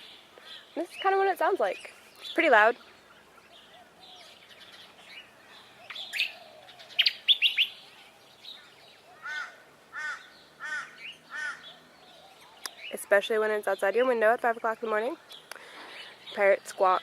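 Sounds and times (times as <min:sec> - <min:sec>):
arched bird calls: 0:00.0 - 0:17.0
sharp bird chirps: 0:01.9 - 0:09.3.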